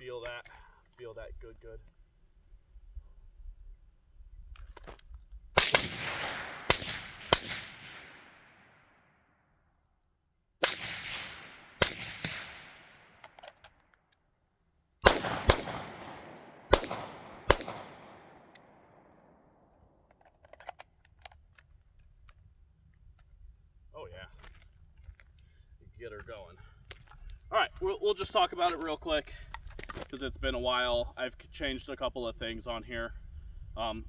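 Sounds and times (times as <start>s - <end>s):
gunshots with echo: 5.6s - 8.6s, 10.6s - 13.2s, 15.0s - 19.1s.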